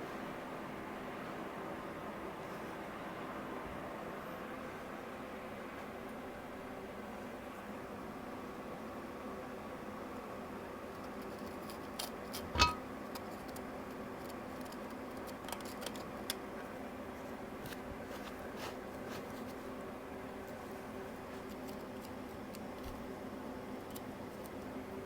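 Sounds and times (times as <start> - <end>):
metal tools clicking and tapping: 12.4 - 12.8
steady hum: 12.4 - 12.8.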